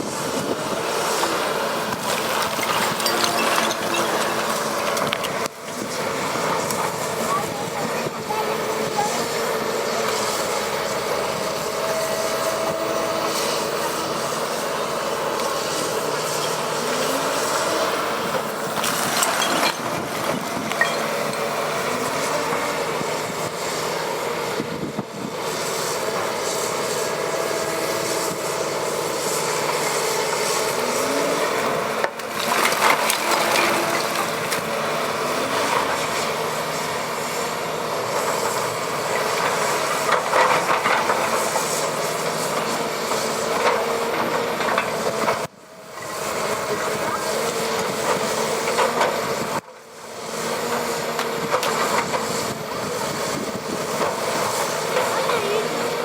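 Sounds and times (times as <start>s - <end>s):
excavator engine and hydraulics: 0.0s - 56.0s
rough scraping noise: 1.9s - 5.4s.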